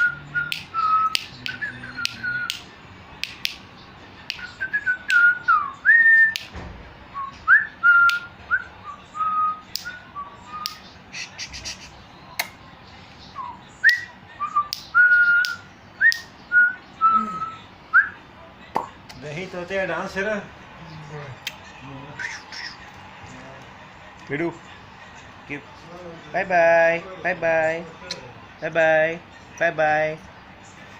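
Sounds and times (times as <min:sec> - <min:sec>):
person whistling a tune: 0:00.0 - 0:02.6.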